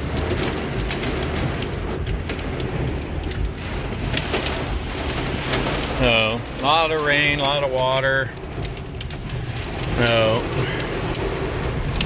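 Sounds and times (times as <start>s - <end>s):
heavy rain on car roof: 0.0s - 12.0s
low vehicle rumble: 0.0s - 12.0s.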